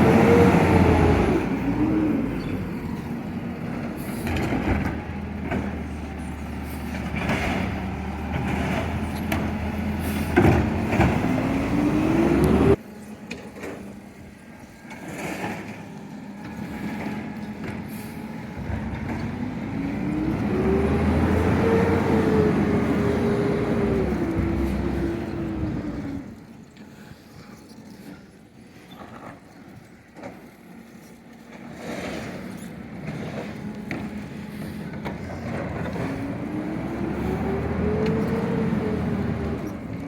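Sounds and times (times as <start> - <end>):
garbage truck engine revving: 0.0 - 12.8, 16.8 - 26.4, 32.1 - 40.0.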